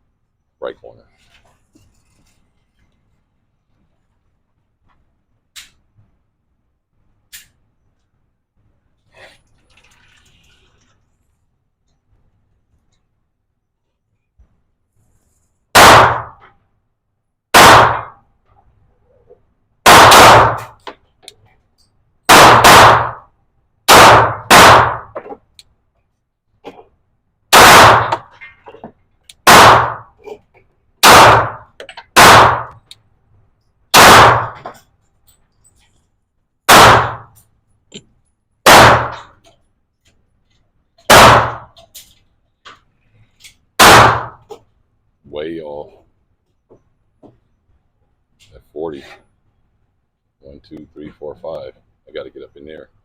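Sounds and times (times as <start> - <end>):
pistol shots with echo: 15.7 - 16.4, 17.5 - 18.2, 19.8 - 20.8, 22.3 - 23.3, 23.9 - 25.2, 27.5 - 28.3, 29.4 - 30.1, 31.0 - 32.8, 33.9 - 34.6, 36.7 - 37.3, 38.7 - 39.3, 41.1 - 41.7, 43.8 - 44.4.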